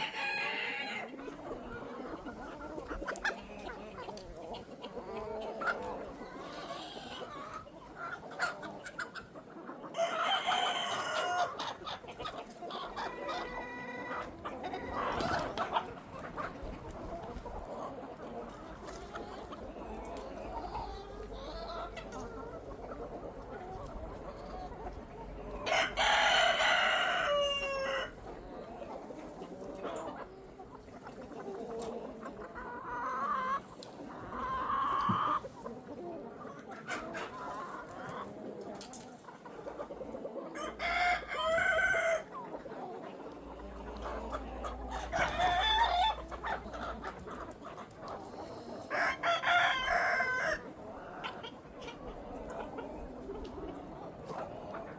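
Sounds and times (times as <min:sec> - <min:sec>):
rooster crowing: 0:00.0 - 0:01.1, 0:25.7 - 0:28.1
chickens clucking: 0:00.0 - 0:54.9.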